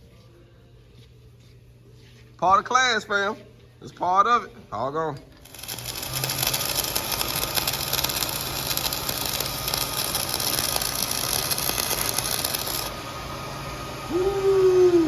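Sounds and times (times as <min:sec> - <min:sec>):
welding arc crackling: 0:05.4 - 0:13.0.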